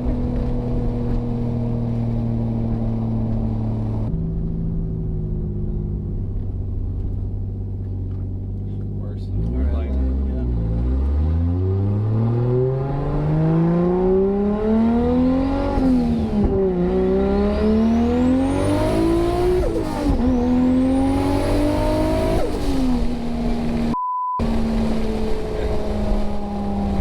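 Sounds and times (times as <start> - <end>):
car engine accelerating: 0.0 - 27.0
censor beep: 23.9 - 24.4.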